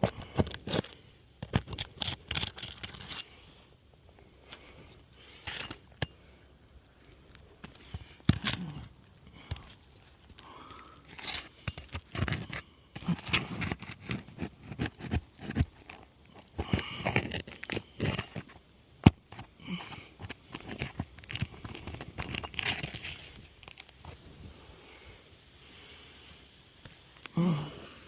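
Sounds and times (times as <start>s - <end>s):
metal tool scraping shingles: 0.0s - 3.4s, 5.3s - 6.1s, 11.0s - 23.4s.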